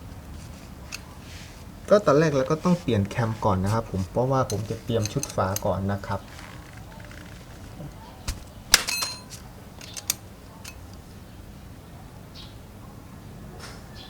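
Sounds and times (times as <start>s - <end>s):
metal tools clinking: 0.9s - 11.0s
metallic ring: 8.7s - 10.2s.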